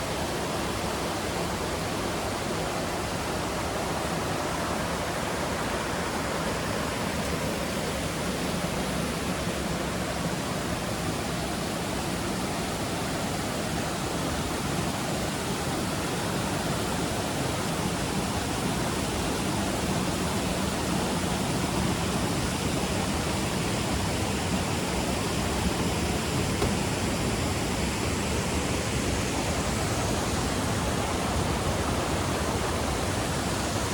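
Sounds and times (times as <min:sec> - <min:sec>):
rushing stream water: 0:00.0 - 0:33.9.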